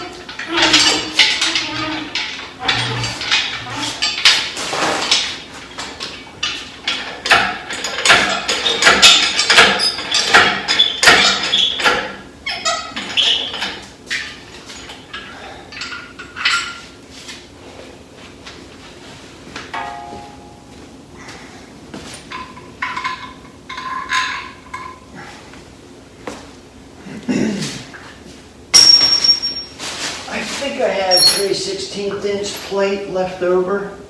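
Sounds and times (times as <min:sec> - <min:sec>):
metal tools clanking: 0:00.0 - 0:17.0, 0:19.7 - 0:20.8, 0:22.0 - 0:25.2, 0:28.7 - 0:33.2.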